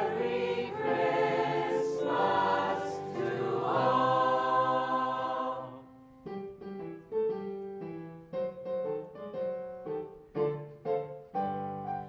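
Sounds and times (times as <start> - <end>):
choir chord: 0.0 - 6.2
piano notes and chords: 0.0 - 12.0.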